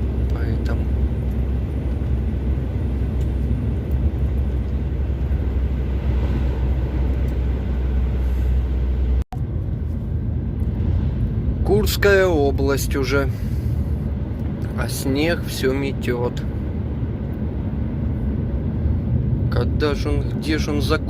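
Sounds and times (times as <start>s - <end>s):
road noise: 0.0s - 21.0s
truck engine drone: 0.0s - 21.0s.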